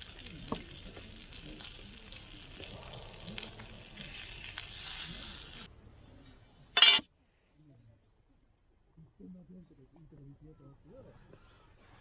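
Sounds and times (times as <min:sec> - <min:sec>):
campfire sizzling and crackling: 0:00.0 - 0:05.7.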